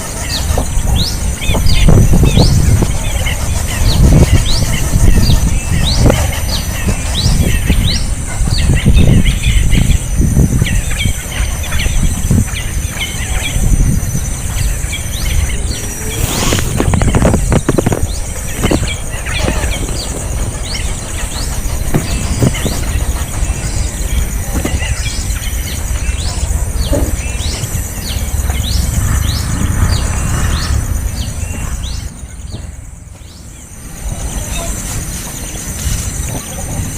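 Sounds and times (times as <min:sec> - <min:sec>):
steady high buzz: 0:00.0 - 0:36.3
high insect whine: 0:00.0 - 0:36.9
small birds chirping: 0:00.0 - 0:36.9
low rumble: 0:13.8 - 0:33.6.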